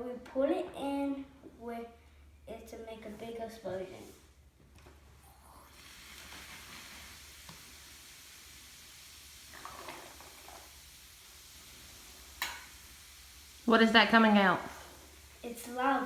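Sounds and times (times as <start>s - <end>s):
foaming bubbles fizzing: 5.1s - 16.0s.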